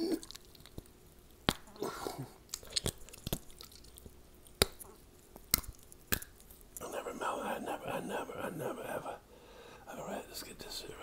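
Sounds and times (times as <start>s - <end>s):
person chewing raw steak: 0.0s - 6.8s
wet mouth clicks and smacks: 0.2s - 1.7s, 2.4s - 6.8s.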